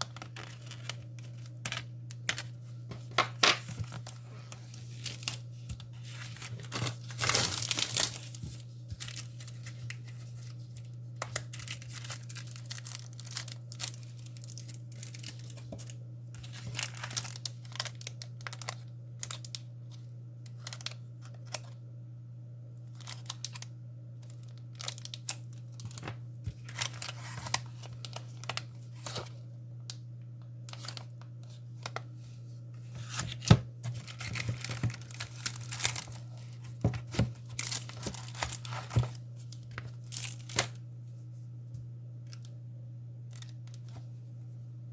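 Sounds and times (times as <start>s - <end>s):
plastic packaging crinkling: 0.0s - 19.6s, 23.0s - 23.6s, 24.2s - 29.3s, 33.0s - 40.8s
steady low hum: 0.0s - 44.9s.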